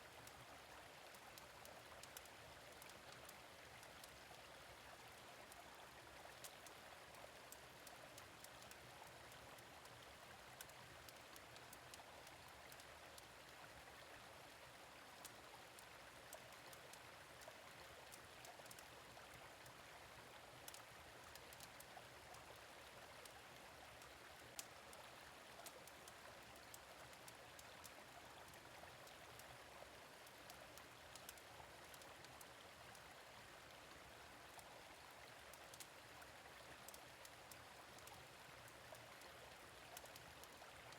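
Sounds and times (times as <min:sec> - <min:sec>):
gentle stream running: 0:00.0 - 0:40.9
wood fire crackling: 0:31.2 - 0:31.4.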